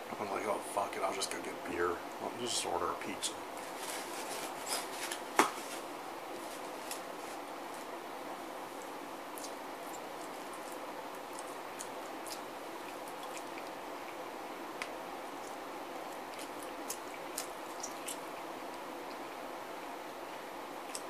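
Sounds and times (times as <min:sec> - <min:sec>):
man chewing close to microphone: 0:08.8 - 0:19.3.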